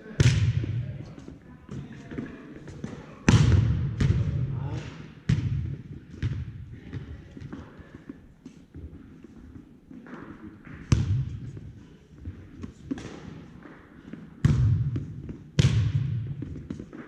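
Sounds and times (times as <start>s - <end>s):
volleyball hits echoing: 0.0s - 1.1s, 1.7s - 7.7s, 10.0s - 11.6s, 12.3s - 17.0s.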